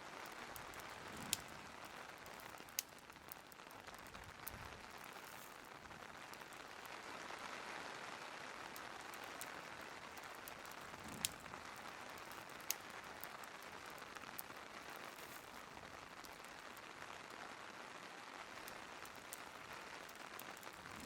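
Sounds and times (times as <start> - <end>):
rain hiss: 0.0 - 21.0.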